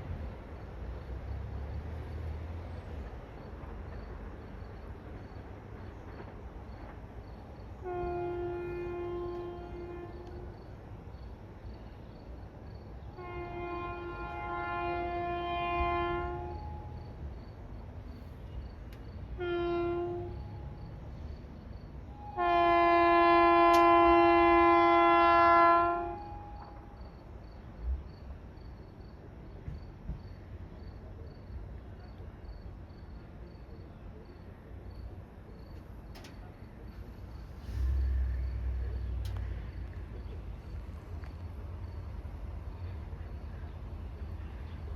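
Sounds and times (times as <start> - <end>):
train air horn blasts: 7.8 - 10.6, 13.2 - 17.0, 19.3 - 20.8, 22.1 - 26.9.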